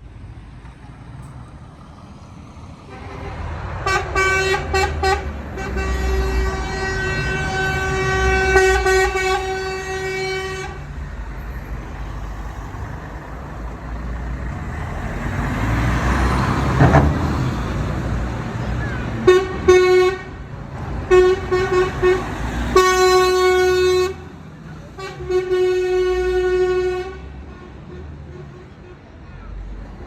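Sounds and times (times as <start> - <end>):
vehicle passing: 0.0 - 19.7, 20.4 - 25.0
truck engines rumbling: 0.0 - 30.0
truck horn: 2.9 - 11.0, 18.8 - 29.6.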